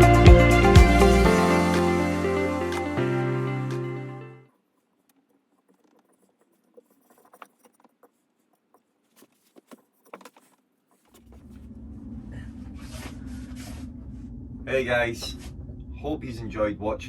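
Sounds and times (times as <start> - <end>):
background music: 0.0 - 4.4.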